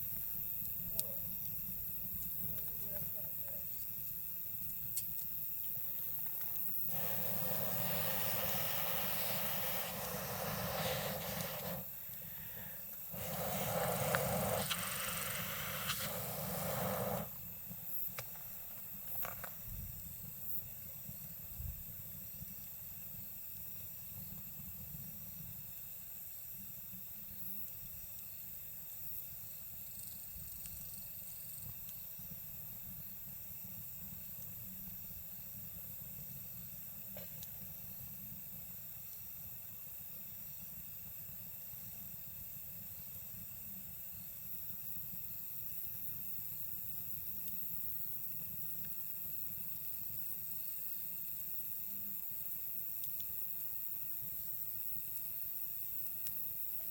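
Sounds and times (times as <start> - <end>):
night insects: 0.0 - 56.9
campfire crackling: 0.1 - 19.6.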